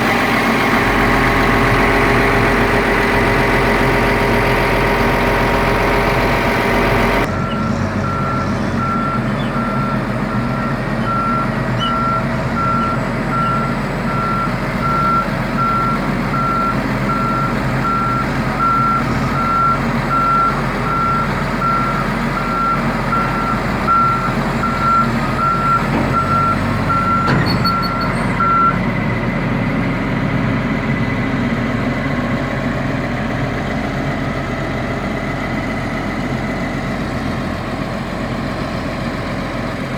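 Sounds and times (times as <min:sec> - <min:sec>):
diesel engine running: 0:00.0 - 0:39.9
reversing alarm beeping: 0:05.6 - 0:28.8.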